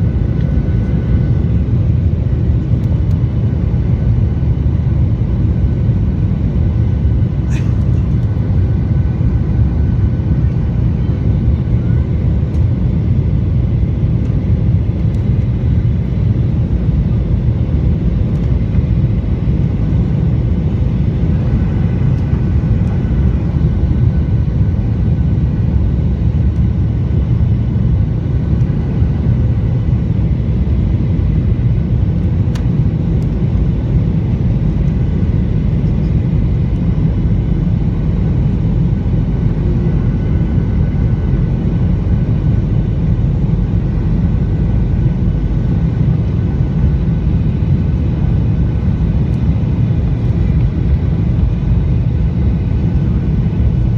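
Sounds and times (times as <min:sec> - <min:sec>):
airliner engine rumble: 0:00.0 - 0:53.9.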